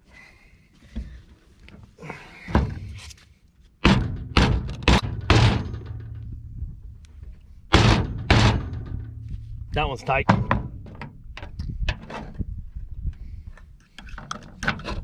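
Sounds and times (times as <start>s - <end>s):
heavy hollow thuds on pipe: 3.8s - 6.5s, 7.7s - 9.4s, 10.2s - 11.2s.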